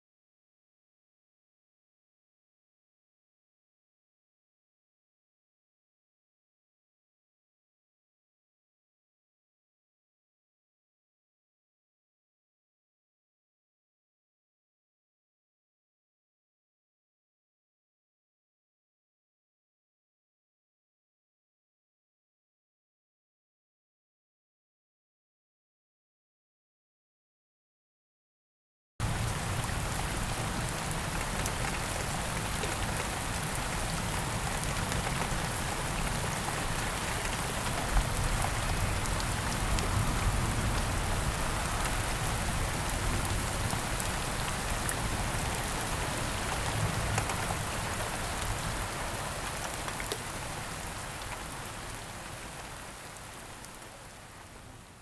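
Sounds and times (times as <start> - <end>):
steady rain falling: 29.0 - 55.0.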